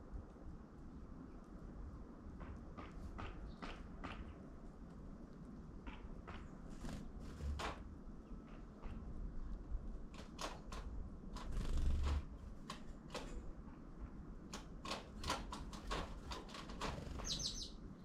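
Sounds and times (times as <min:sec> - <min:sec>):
bird pecking with sharp taps: 0:02.3 - 0:04.5, 0:05.3 - 0:07.8, 0:08.4 - 0:13.4, 0:14.5 - 0:17.4
bird high call: 0:17.2 - 0:17.8.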